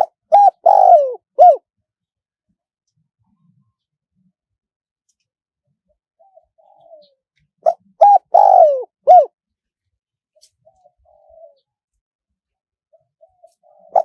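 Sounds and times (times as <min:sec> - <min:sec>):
dove cooing: 0:00.0 - 0:01.6, 0:06.2 - 0:09.4, 0:10.6 - 0:11.8, 0:12.9 - 0:14.0.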